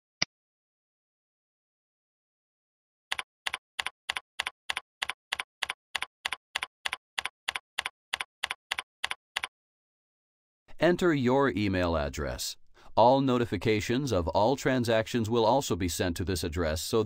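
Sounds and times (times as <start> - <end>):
computer keyboard keystrokes: 3.1 - 9.5.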